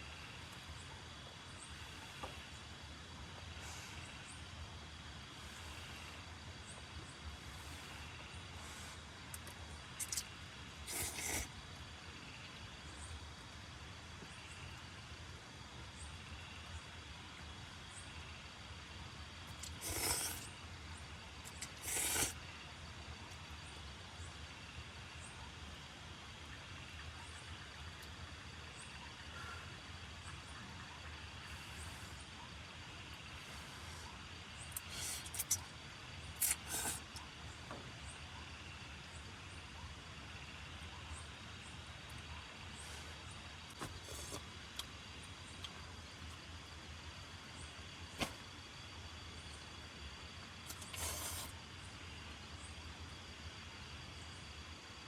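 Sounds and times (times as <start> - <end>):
steady outdoor hiss: 0.0 - 55.0
loud hissing bursts: 10.8 - 11.5, 19.6 - 20.5, 21.6 - 22.4, 36.4 - 37.1.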